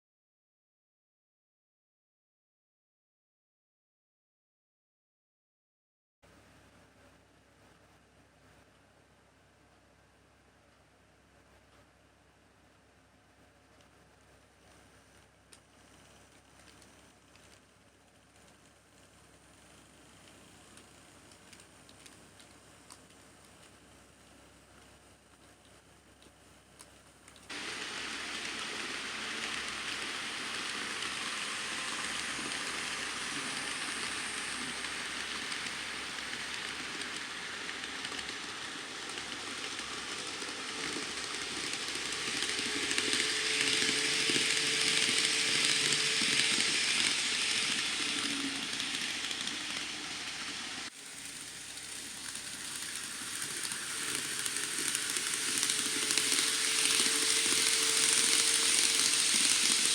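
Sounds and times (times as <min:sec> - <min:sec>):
faint motor whine: 0:06.3 - 0:59.9
model train wheels rattling on rails: 0:27.4 - 0:59.9.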